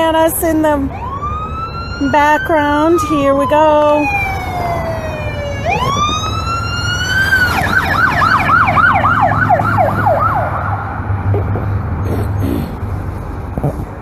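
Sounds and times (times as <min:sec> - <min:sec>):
vehicle engines rumbling: 0:00.0 - 0:14.0
electronic police siren: 0:00.9 - 0:11.0.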